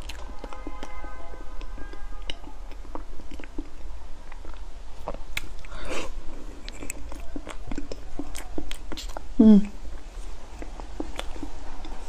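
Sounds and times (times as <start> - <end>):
close-up chewing: 0.0 - 1.0, 1.6 - 12.0
lip smacks and clicks: 1.6 - 5.8, 10.5 - 12.0.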